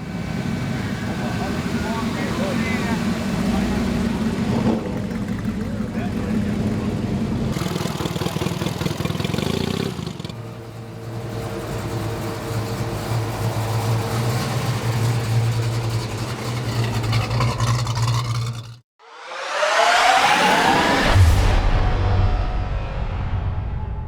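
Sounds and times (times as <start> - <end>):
car engine idling: 0.0 - 18.8.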